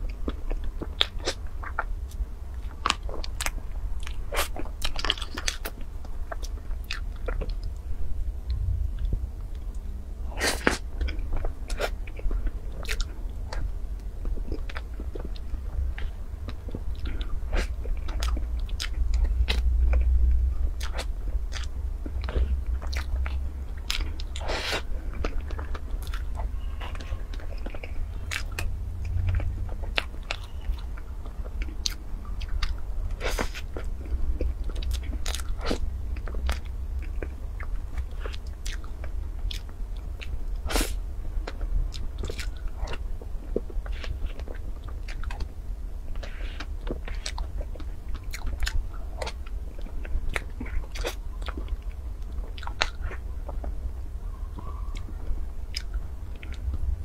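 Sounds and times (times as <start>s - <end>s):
wet chewing and mouth clicks: 0.0s - 7.8s, 10.4s - 53.8s, 54.5s - 56.9s
steady low hum: 0.0s - 57.0s.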